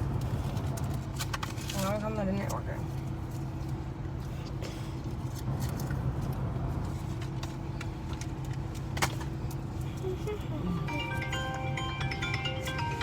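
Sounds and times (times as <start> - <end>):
air conditioning blower: 0.0 - 13.0.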